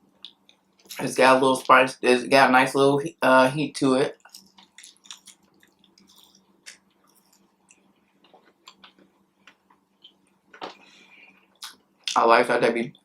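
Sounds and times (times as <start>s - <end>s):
faint chewing: 4.2s - 12.2s.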